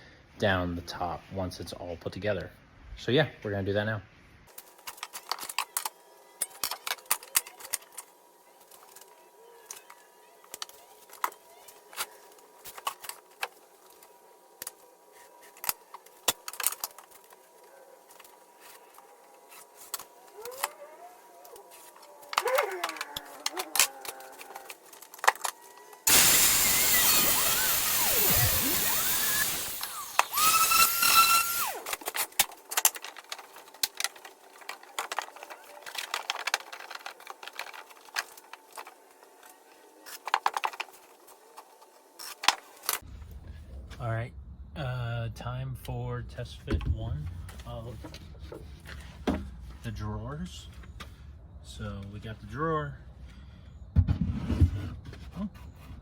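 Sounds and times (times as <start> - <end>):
saw spinning with high whine: 18.0 - 32.5
circular saw cutting plywood: 18.2 - 32.5
tools and wood clattering: 29.4 - 43.0.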